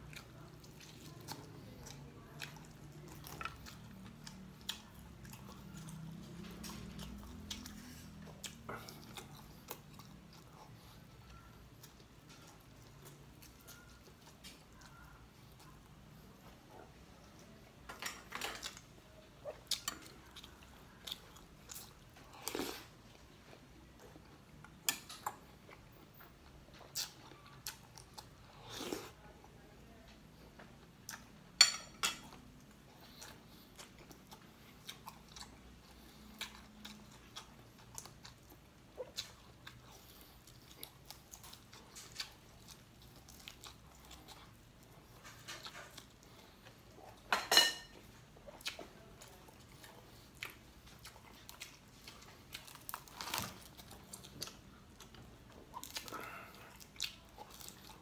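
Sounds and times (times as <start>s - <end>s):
person chewing crunchy food: 0.0s - 15.8s, 18.2s - 29.2s, 32.2s - 58.0s.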